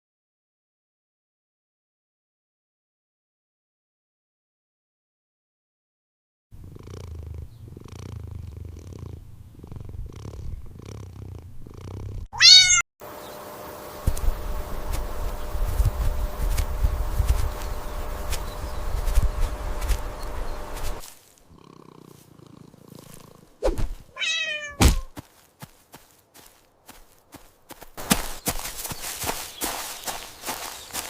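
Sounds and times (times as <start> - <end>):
cat purring: 6.6 - 12.3, 14.0 - 24.6
cat meowing: 12.4 - 12.8, 24.1 - 25.1.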